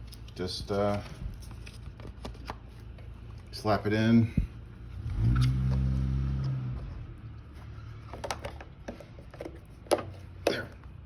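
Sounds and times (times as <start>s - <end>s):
air filter clicks and knocks: 8.1s - 10.7s.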